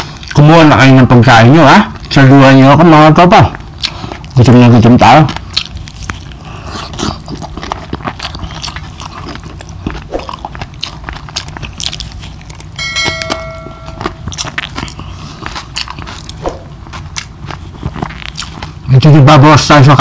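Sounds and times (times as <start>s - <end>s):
crunching and chewing: 0.0s - 20.0s
bell-like chime: 12.8s - 14.6s.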